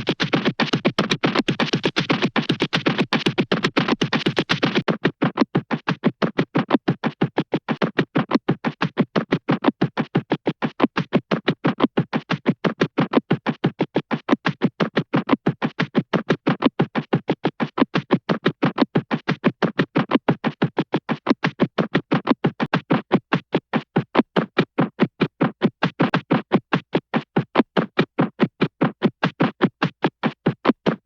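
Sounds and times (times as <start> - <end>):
rapid cartoon pulsing: 0.0 - 5.8.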